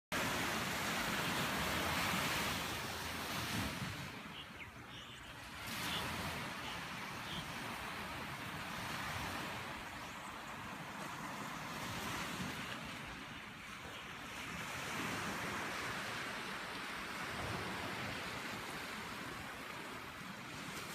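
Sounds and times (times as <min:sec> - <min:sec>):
faint high bird chirps: 0:04.2 - 0:07.6.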